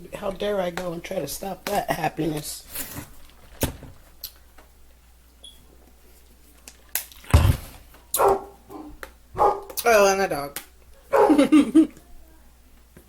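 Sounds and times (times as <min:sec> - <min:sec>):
loud thump: 0:07.3 - 0:07.8.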